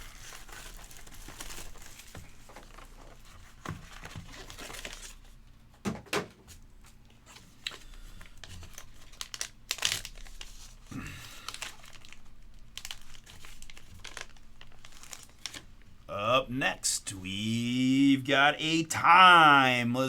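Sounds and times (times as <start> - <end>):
packaging crinkling and tearing: 0.0 - 5.4, 7.3 - 16.1.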